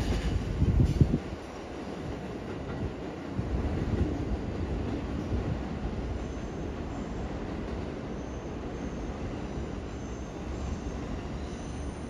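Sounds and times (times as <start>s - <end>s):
train wheels rumbling: 0.0s - 12.0s
faint high wheel squeal: 8.1s - 12.0s.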